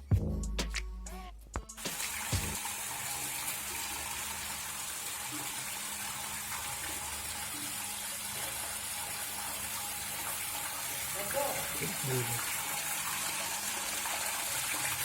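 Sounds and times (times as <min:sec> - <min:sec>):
waterfall splashing: 0:01.8 - 0:02.7.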